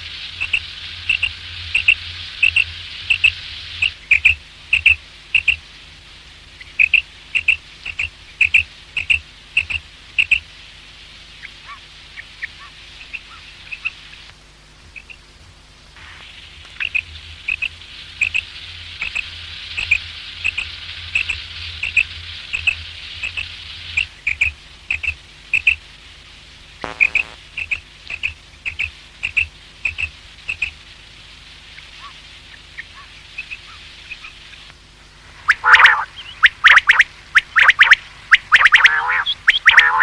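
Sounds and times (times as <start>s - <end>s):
quail calling: 11.4s - 11.8s, 15.0s - 15.2s, 16.8s - 19.2s, 19.8s - 25.0s, 35.5s - 40.0s.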